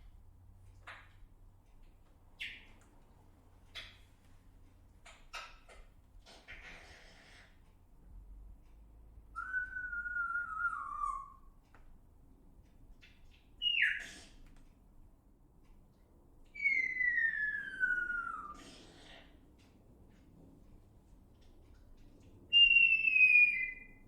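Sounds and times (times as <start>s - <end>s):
bird whistles falling in pitch: 16.6s - 18.6s, 22.6s - 23.9s.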